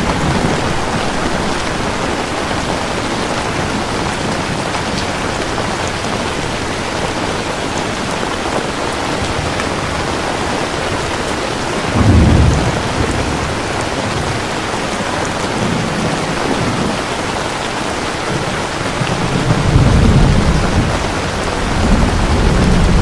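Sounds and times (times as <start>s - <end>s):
heavy rain: 0.0s - 23.0s
thunder rolling: 11.8s - 14.8s, 18.3s - 23.0s.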